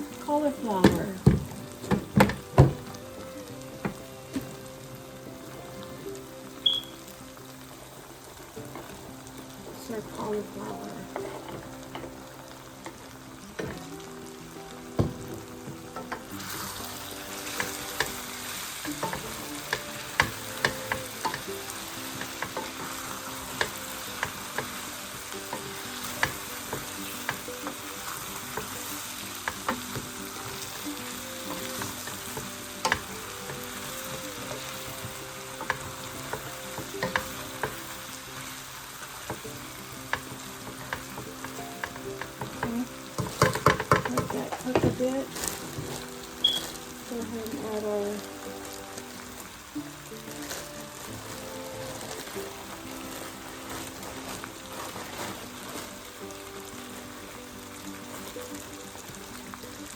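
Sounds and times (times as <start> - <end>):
food sizzling in a pan: 0.0 - 59.9
utensil knocking against pan: 0.8 - 2.9, 40.1 - 45.1.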